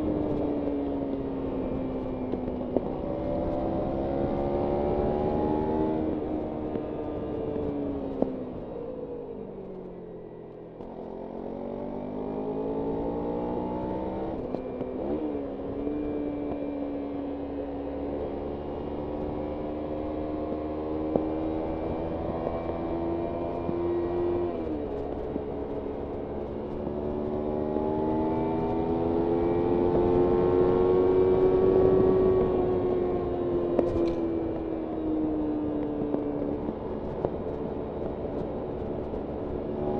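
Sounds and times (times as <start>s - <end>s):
motorcycle engine revving: 1.4s - 7.7s, 10.8s - 39.9s
wind noise: 18.3s - 39.9s.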